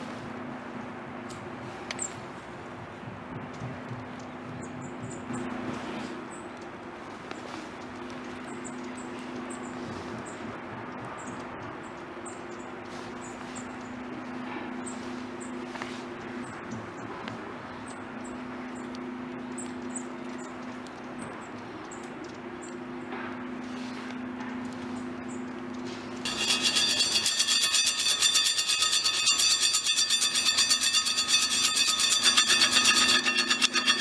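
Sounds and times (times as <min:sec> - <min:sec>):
steady low hum: 0:17.5 - 0:34.0.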